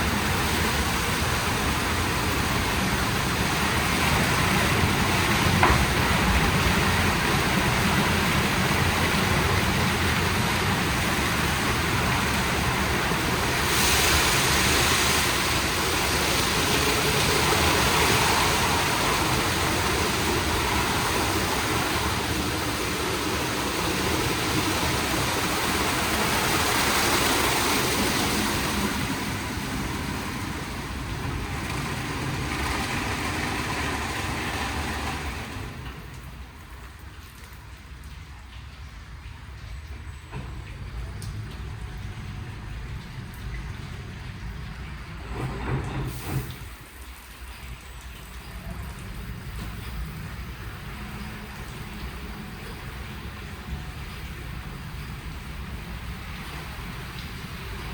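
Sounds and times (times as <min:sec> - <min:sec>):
water spraying hiss: 0:00.0 - 0:36.6, 0:45.2 - 0:47.6
car wash machinery: 0:00.0 - 0:57.9.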